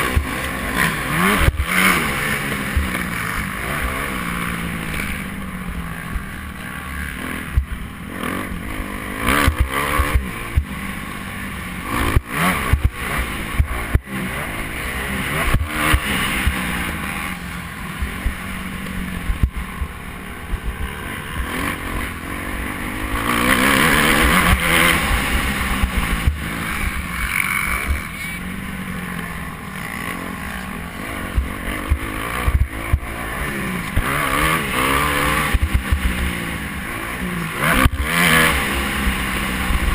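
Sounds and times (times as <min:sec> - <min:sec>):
motocross bike engines revving: 0:00.0 - 0:39.9.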